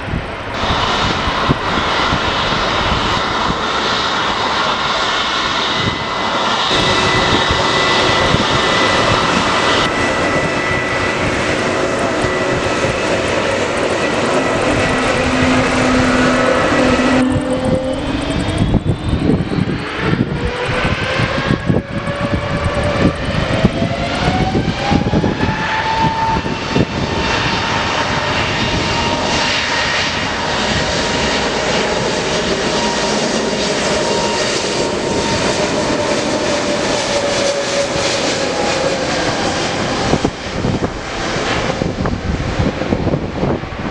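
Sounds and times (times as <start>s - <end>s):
jet engines spooling up: 0.2s - 43.9s.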